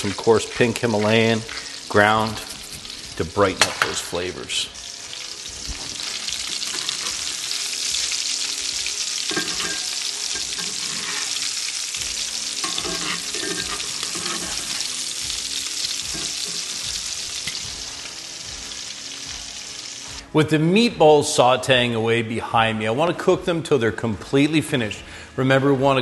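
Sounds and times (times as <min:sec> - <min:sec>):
meatballs sizzling in skillet: 0:00.0 - 0:20.3
metal tongs turning food: 0:02.2 - 0:03.1, 0:05.9 - 0:18.2.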